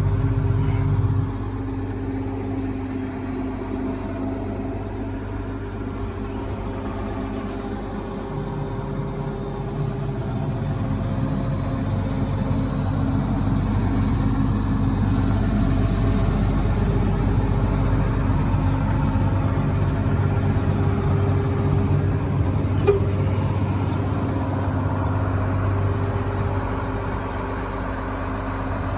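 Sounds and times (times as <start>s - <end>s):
diesel engine running: 0.0s - 28.9s
short click: 22.6s - 23.2s.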